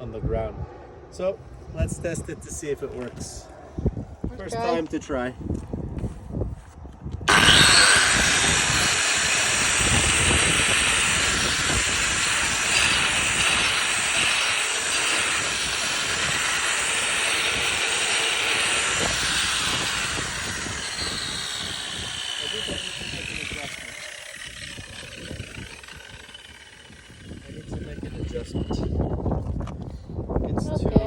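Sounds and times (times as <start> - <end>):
concrete grinder running: 7.3 - 29.1.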